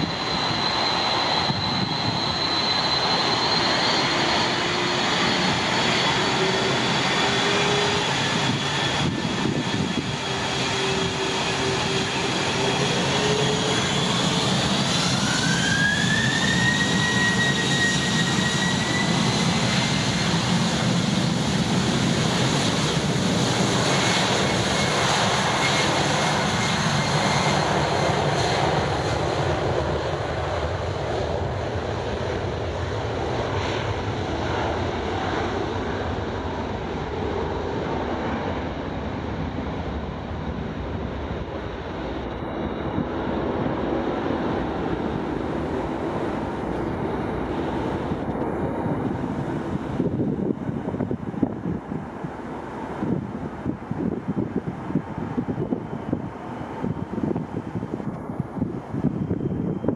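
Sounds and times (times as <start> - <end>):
jet engines roaring: 0.0 - 59.9.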